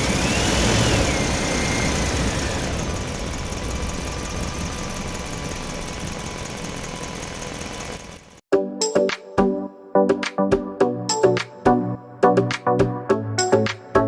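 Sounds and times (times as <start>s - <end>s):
small motor whining: 0.0s - 8.2s.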